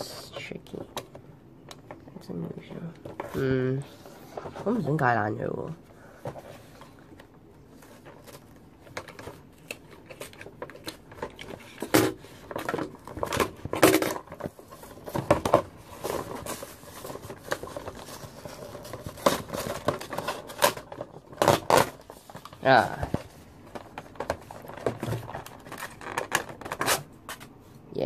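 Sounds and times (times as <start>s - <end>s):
packaging rustling and crinkling: 6.0s - 27.6s.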